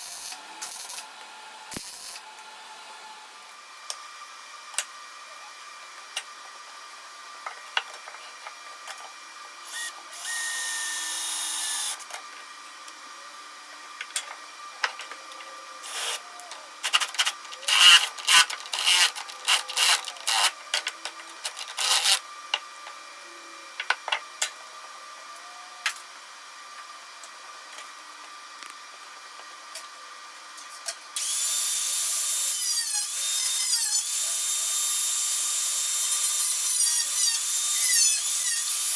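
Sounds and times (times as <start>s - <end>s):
power tool running: 0.0s - 3.5s, 9.6s - 12.1s, 15.8s - 22.3s.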